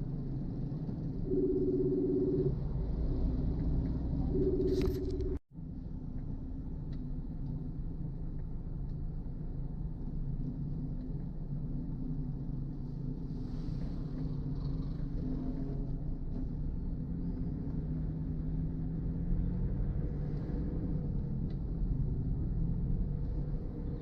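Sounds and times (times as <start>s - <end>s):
car driving on wet road: 9.2s - 24.0s.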